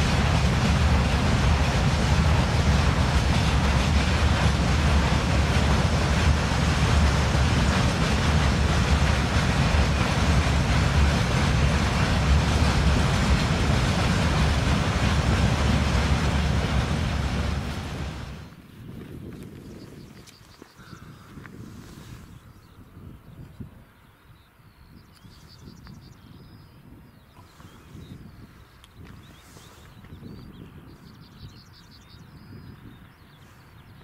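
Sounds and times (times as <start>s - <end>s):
freight train wheels on rails: 0.0s - 18.6s.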